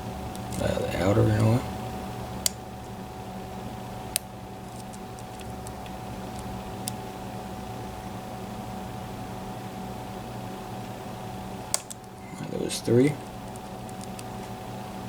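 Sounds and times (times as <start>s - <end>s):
lock pick metallic clicks: 11.8s - 12.2s.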